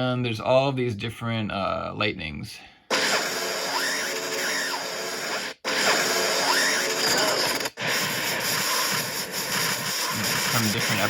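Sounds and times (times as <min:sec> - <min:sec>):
electric crackling and buzzing: 0:04.4 - 0:11.0.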